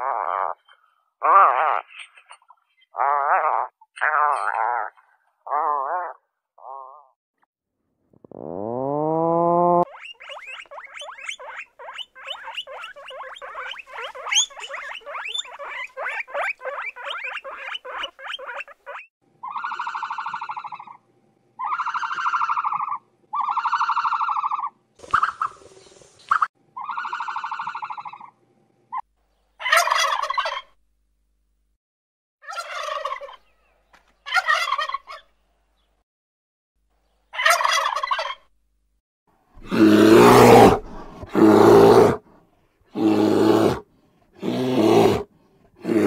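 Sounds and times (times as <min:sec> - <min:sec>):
buzzy calls: 0:08.2 - 0:21.0
guinea pigs squeaking: 0:09.8 - 0:21.0
turkey gobbling: 0:19.4 - 0:21.0, 0:21.6 - 0:25.6, 0:26.3 - 0:28.3, 0:29.6 - 0:30.7, 0:32.4 - 0:33.5, 0:34.3 - 0:35.3, 0:37.4 - 0:38.4.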